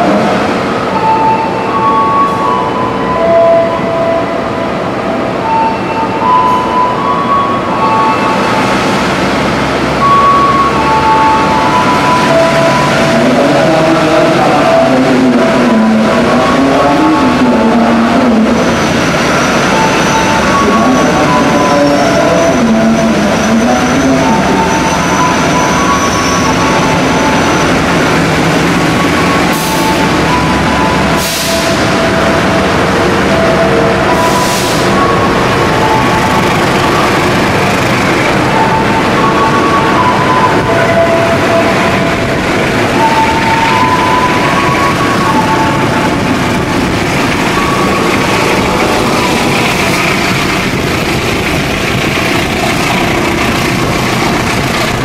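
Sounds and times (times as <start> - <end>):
train rumbling: 0.0 - 55.0
train wheels squealing: 18.8 - 27.9.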